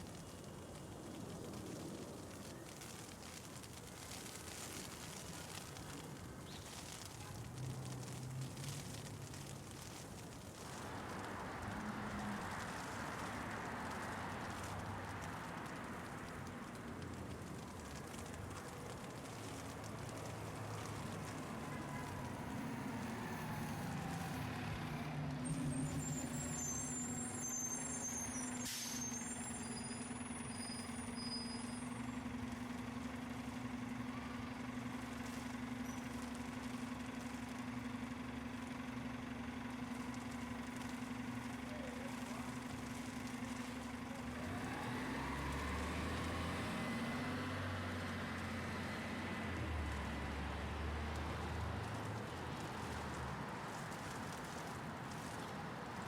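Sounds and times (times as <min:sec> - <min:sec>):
heavy vehicle engine hum: 0:00.1 - 0:56.0
deep engine rumble: 0:10.6 - 0:53.5.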